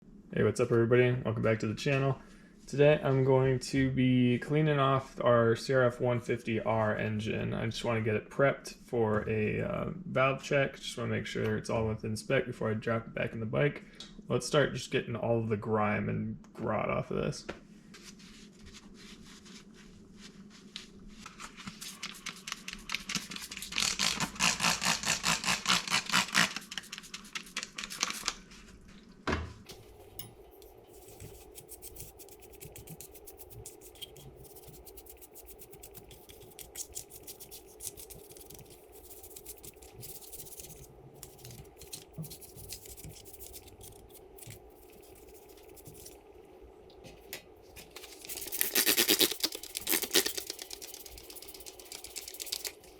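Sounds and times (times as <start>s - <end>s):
steady hum: 28.4s - 52.9s
light scratching: 30.6s - 46.3s, 47.7s - 52.9s
scrubbing grime on engine case: 31.0s - 46.2s.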